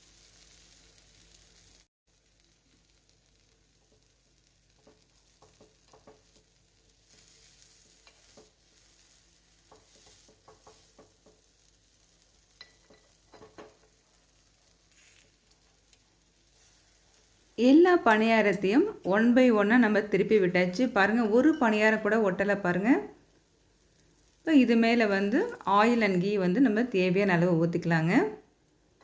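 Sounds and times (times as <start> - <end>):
food sizzling faintly in oil: 0.0 - 29.0
spoon clicking against pan: 12.6 - 13.8.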